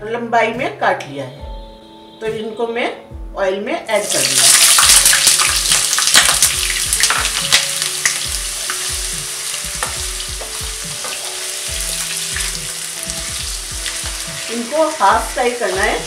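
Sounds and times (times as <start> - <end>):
potatoes sizzling in oil: 4.0 - 16.0.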